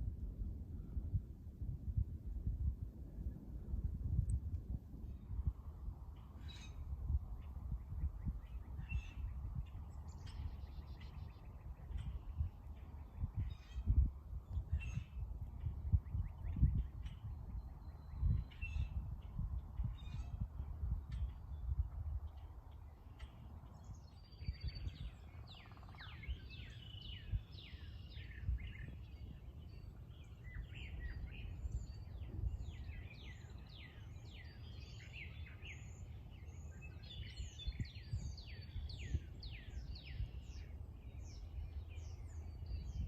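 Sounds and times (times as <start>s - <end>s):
steady low rumble: 0.0s - 25.6s
songbirds calling: 5.1s - 43.0s.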